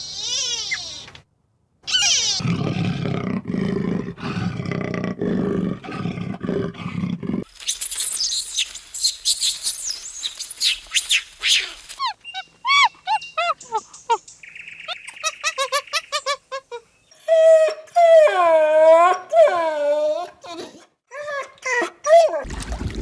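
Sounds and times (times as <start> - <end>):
dogs yelping and howling: 12.0 - 13.8, 17.2 - 22.4.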